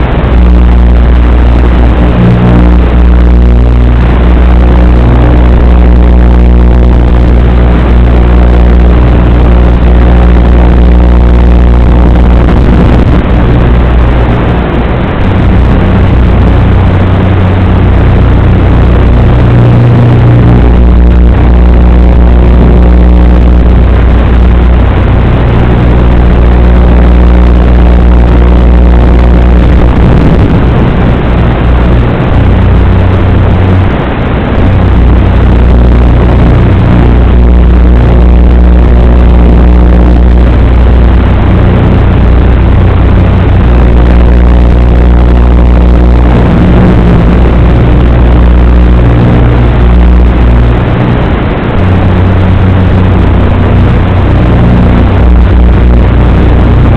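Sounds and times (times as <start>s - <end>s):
humming tones shifting pitch: 0.0s - 56.9s
wind buffeting microphone: 12.2s - 38.8s.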